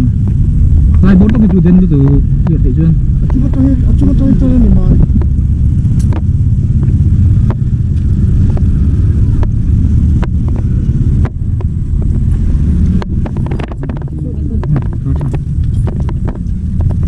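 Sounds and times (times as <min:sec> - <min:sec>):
heavy machinery rumbling: 0:00.0 - 0:17.0
sharp clicks: 0:05.1 - 0:08.7.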